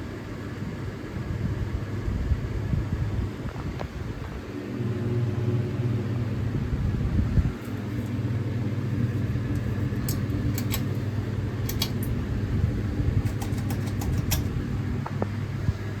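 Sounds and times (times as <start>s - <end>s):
ceiling fan motor hum: 0.0s - 16.0s
sharp clicks: 11.6s - 12.2s.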